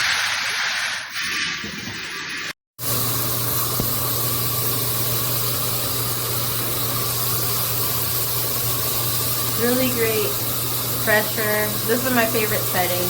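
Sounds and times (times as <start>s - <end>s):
shower head spraying water: 2.8s - 13.0s.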